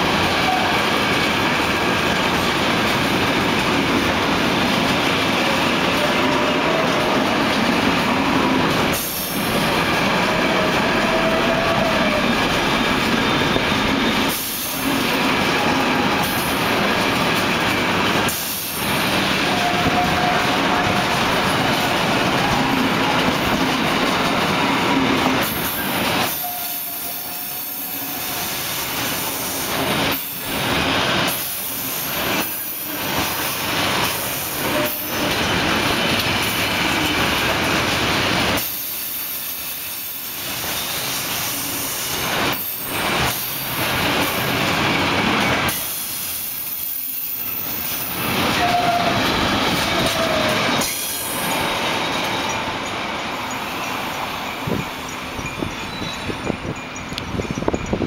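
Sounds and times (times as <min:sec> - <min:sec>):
freight train wheels rattling on rails: 0:00.0 - 0:58.0
train wheel squeals: 0:08.3 - 0:16.8, 0:17.9 - 0:58.0.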